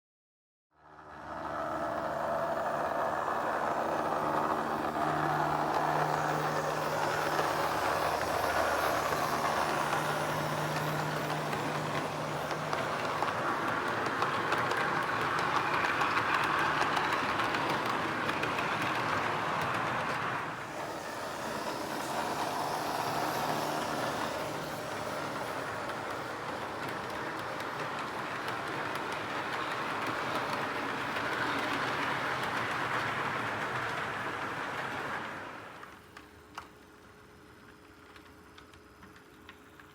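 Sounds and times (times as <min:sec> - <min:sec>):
faint motor hum: 0:00.8 - 0:18.9
model train wheels rolling on rail: 0:00.8 - 0:39.9.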